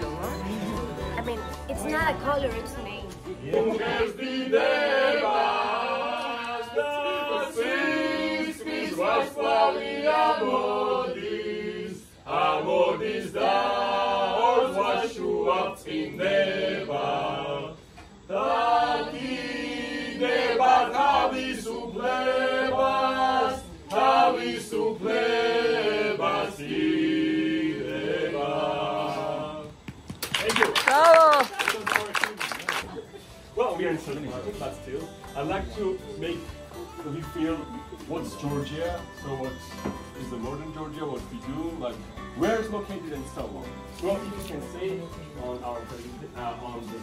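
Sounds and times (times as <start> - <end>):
voices singing a cappella: 0.0 - 2.4, 3.2 - 29.8.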